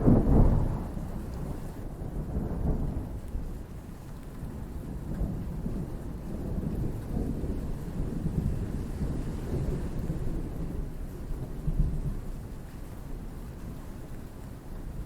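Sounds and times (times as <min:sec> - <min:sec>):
distant thunder rumbling: 0:00.0 - 0:03.2
steady rain: 0:00.0 - 0:15.0.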